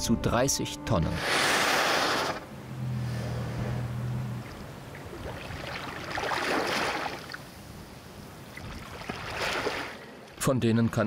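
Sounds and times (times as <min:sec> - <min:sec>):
water splashing and sloshing: 0:01.6 - 0:10.4
low steady hum: 0:02.4 - 0:10.0.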